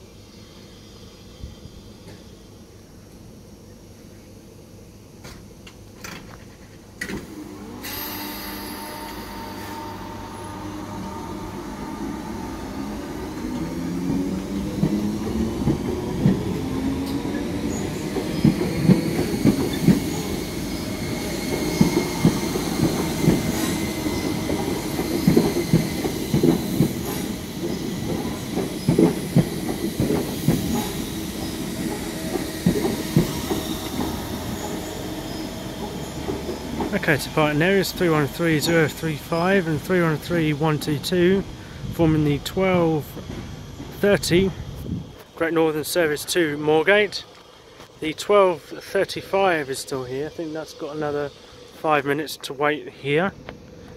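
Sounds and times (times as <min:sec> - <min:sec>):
electric train motors whining: 0:06.9 - 0:52.6
train wheels clicking over rail joints: 0:12.8 - 0:41.2.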